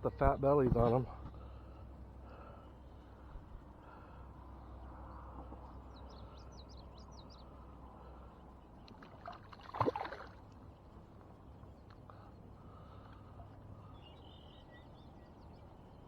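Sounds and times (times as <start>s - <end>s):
quiet water: 0.0s - 16.0s
loud splash: 9.2s - 10.4s
bird chirping: 13.8s - 16.0s.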